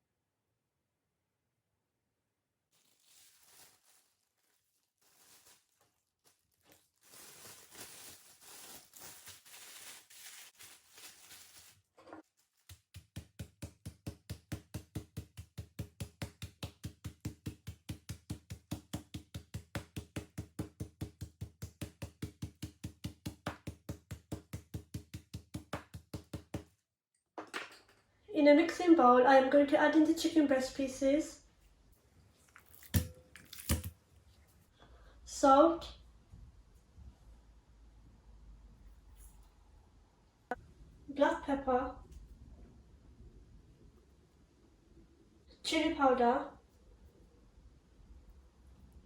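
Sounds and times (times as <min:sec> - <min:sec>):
rustling and scraping: 0:02.7 - 0:13.8.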